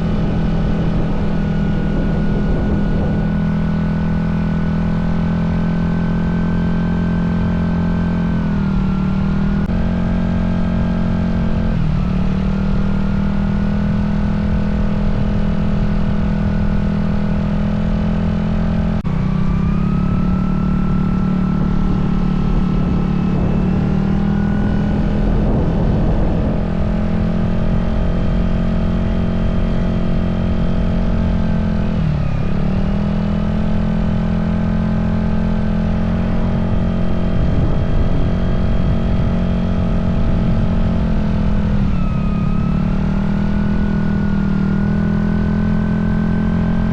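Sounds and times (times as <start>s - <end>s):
scooter engine running: 0.0s - 4.2s, 14.2s - 45.8s.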